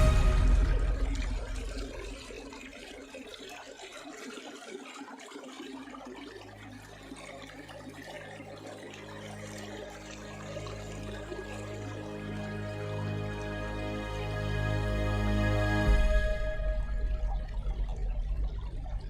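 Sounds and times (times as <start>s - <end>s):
background music: 0.0s - 2.7s, 8.7s - 18.0s
low steady hum: 0.0s - 3.1s, 6.7s - 19.0s
water trickling and splashing: 0.0s - 19.0s.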